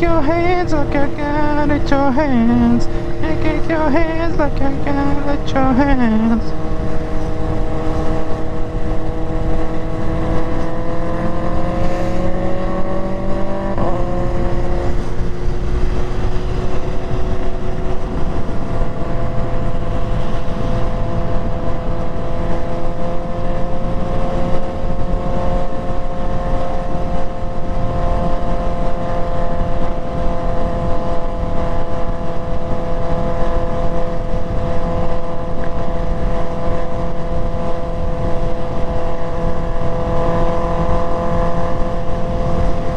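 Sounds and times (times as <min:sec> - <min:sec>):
motorcycle engine revving: 0:00.0 - 0:42.9
wind and road rush: 0:00.0 - 0:42.9.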